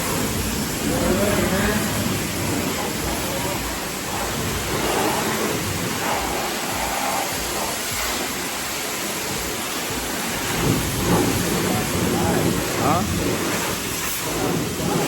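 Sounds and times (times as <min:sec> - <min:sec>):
pressure washer spraying water: 0:00.0 - 0:15.0.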